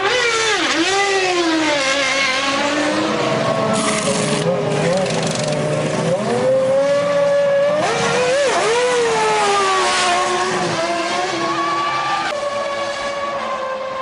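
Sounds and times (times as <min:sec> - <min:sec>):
racing car engine at high revs: 0:00.0 - 0:14.0.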